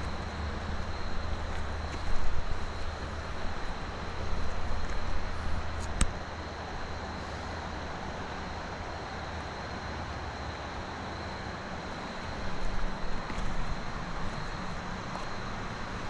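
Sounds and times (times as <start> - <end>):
wind buffeting microphone: 0.0 - 6.2
outdoor background noise: 0.0 - 16.0.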